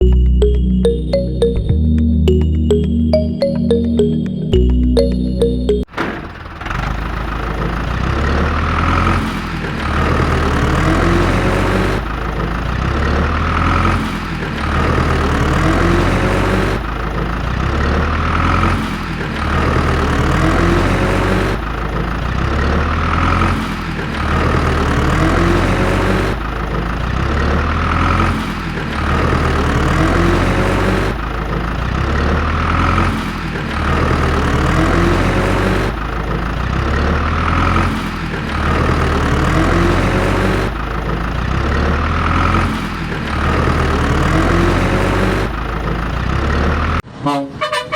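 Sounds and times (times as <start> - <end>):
truck engine running: 0.0 - 47.0.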